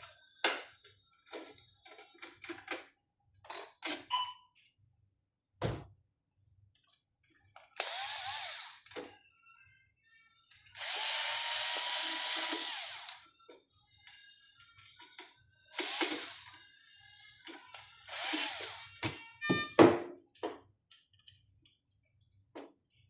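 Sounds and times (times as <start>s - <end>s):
electric screwdriver running: 7.8s - 9.0s, 10.8s - 13.2s, 15.8s - 16.5s, 18.1s - 19.0s.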